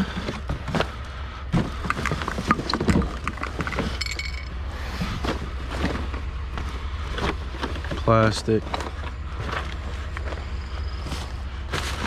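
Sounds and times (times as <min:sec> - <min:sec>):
junk knocking and clattering: 0:00.0 - 0:04.6.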